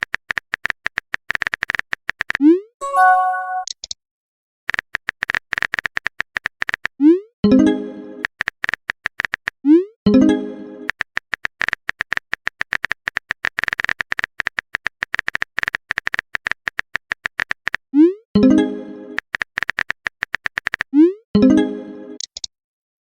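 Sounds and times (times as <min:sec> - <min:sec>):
background music: 0:02.8 - 0:03.7, 0:07.5 - 0:08.3, 0:10.1 - 0:10.9, 0:18.4 - 0:19.2, 0:21.4 - 0:22.2
short chime: 0:02.8 - 0:03.7
phone keyboard typing clicks: 0:10.9 - 0:17.8, 0:19.2 - 0:20.9.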